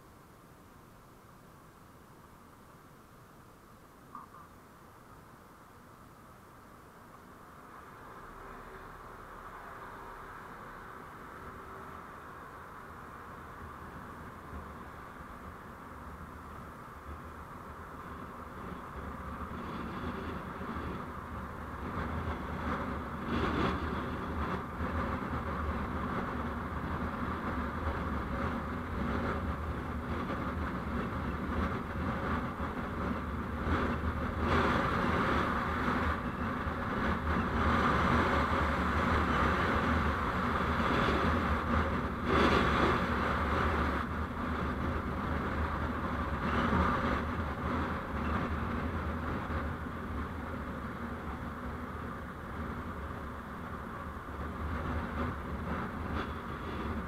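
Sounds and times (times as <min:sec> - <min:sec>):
vehicle road and engine noise: 0:00.0 - 0:57.0.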